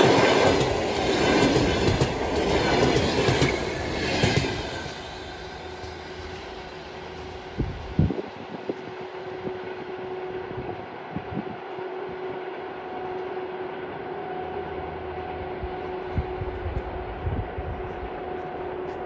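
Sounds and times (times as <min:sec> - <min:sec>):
train wheels rumbling on track: 0:00.0 - 0:19.0
constant hum: 0:05.6 - 0:19.0.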